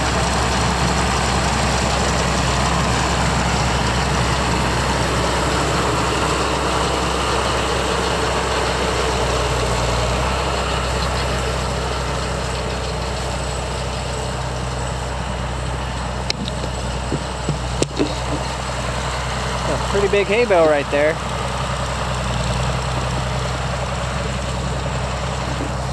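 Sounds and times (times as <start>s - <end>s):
machinery noise: 0.0s - 25.9s
tractor engine running: 0.0s - 25.9s.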